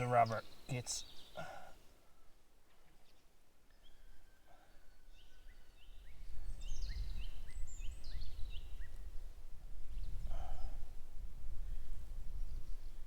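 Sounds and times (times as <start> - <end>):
birds chirping: 0.0 - 1.8.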